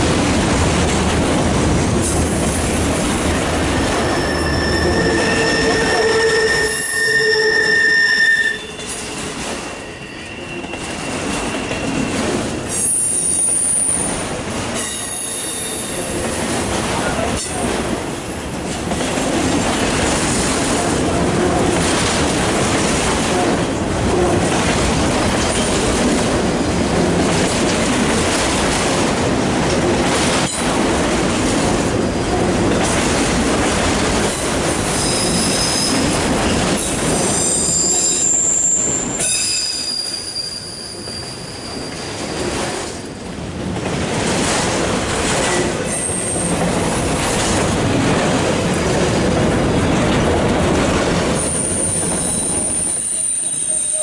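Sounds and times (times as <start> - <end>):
steel wheels on rail: 0.0 - 54.0
high-pitched wheel squeals: 3.9 - 14.1, 35.0 - 36.1, 37.2 - 42.4, 51.4 - 54.0.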